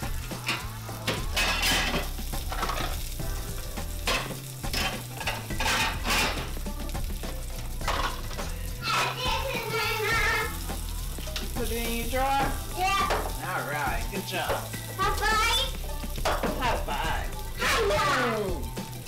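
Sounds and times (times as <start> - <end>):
sausage sizzling in skillet: 0.0 - 19.0.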